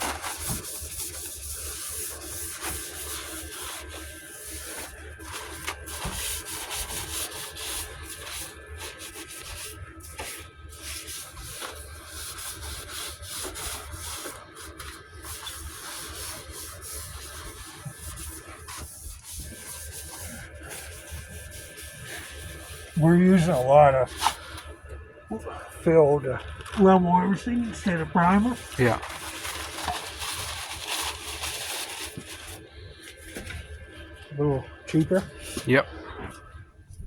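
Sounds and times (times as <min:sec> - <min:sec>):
hand rubbing metal panel: 0:00.0 - 0:24.5.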